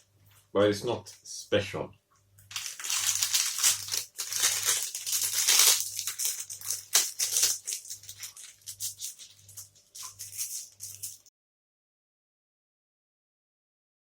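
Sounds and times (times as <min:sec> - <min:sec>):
plastic wrappers crinkling: 0:02.5 - 0:11.3.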